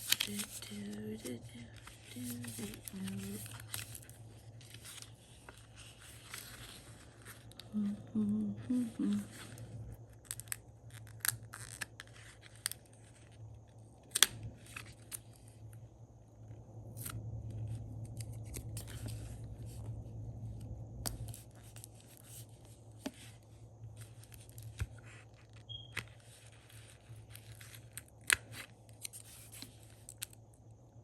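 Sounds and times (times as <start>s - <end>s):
paper rustling: 0.0s - 8.0s, 18.1s - 20.0s, 24.0s - 30.3s
low steady hum: 0.0s - 31.0s.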